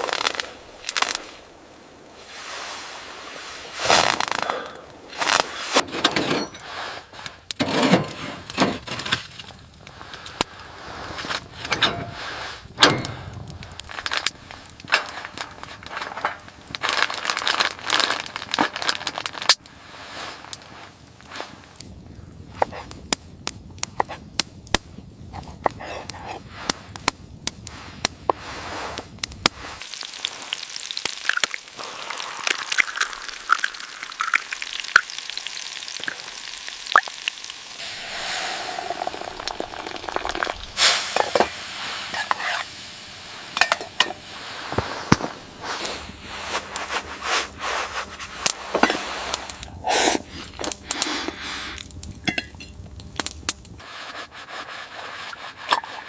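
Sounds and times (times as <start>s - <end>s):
crackles and pops: 0.0s - 5.8s, 8.4s - 54.2s
food sizzling in a pan: 29.6s - 45.0s.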